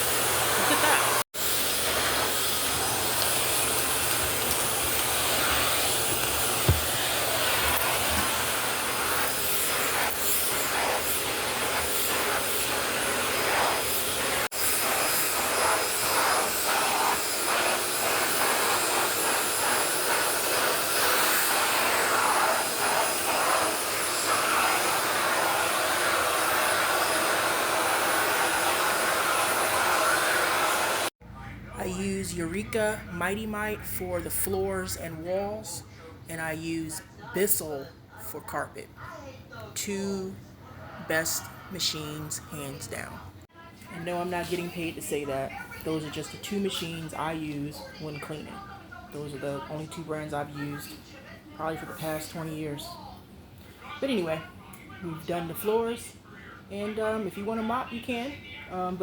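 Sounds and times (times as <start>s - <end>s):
vacuum cleaner running: 0.0s - 31.2s.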